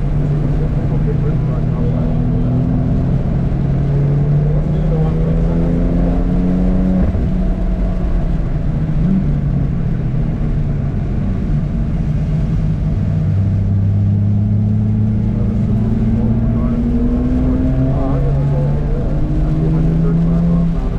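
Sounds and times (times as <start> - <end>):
car engine accelerating: 0.0 - 20.9.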